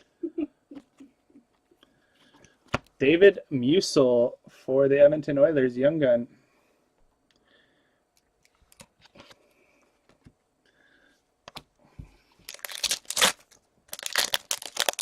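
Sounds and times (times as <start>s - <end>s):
card wrappers rustling: 12.4s - 15.0s.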